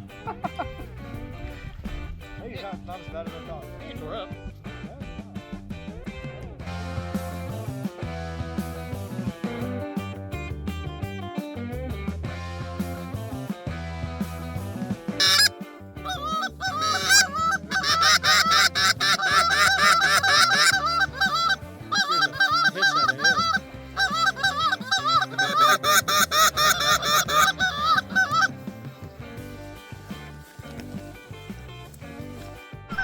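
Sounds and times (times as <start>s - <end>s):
geese honking: 15.2s - 15.5s, 16.1s - 28.5s.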